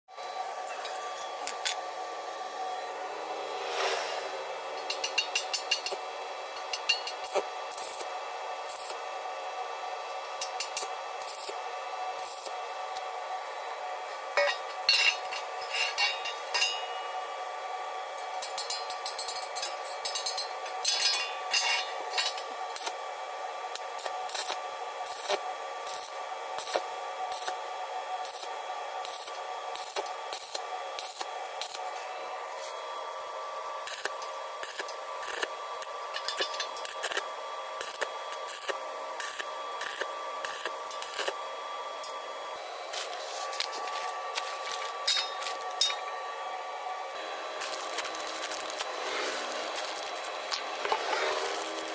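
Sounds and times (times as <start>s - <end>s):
steady high hum: 0.1s - 51.9s
metal tools clicking and scraping: 4.8s - 6.0s, 14.4s - 16.9s, 18.3s - 22.9s, 36.1s - 37.2s, 43.0s - 46.1s, 47.6s - 51.9s.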